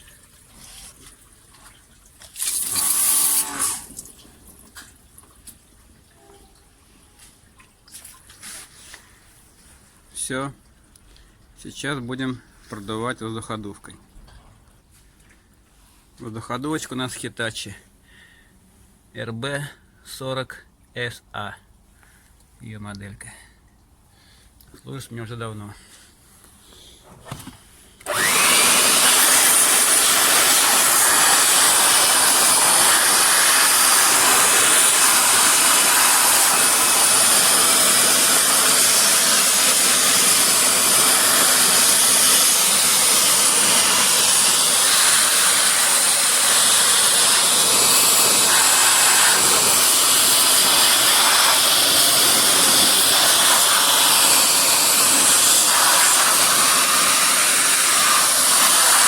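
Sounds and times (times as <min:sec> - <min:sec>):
blower rushing hiss of air: 0:28.0 - 0:59.0.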